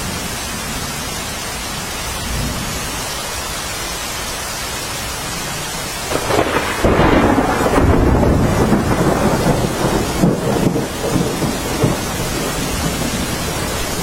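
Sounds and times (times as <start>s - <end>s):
steady rain: 0.0s - 14.0s
thunder rumbling: 6.1s - 14.0s.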